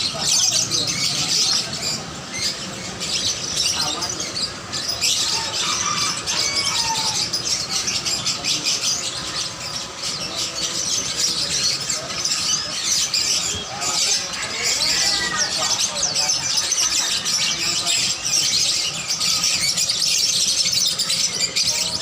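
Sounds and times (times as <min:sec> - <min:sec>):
caged birds chirping and squawking: 0:00.0 - 0:22.0.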